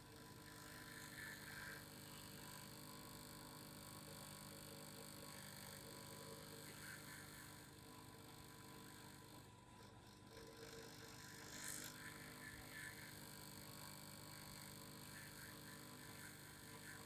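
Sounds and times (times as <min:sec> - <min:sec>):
faint vibrating hum: 0:00.0 - 0:17.0.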